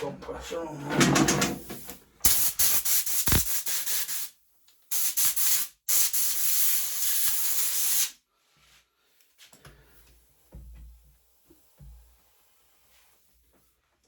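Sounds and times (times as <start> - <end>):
air gun hissing: 1.6 - 4.3, 4.9 - 8.1.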